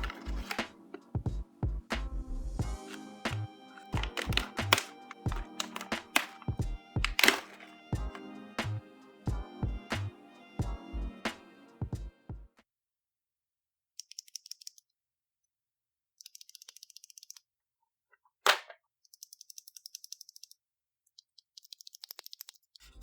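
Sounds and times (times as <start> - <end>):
small hard objects clicking: 2.8 - 8.2, 21.2 - 22.7.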